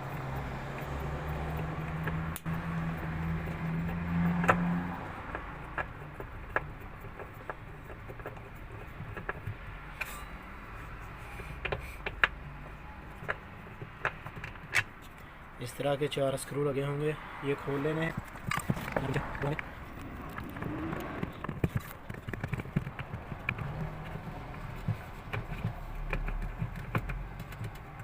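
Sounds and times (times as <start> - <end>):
light metallic clicks and taps: 0.0 - 10.3.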